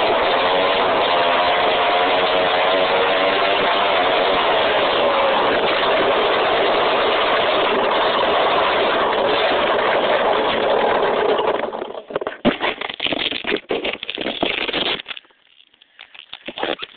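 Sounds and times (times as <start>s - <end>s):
dirt bike engine running: 0.0s - 12.5s.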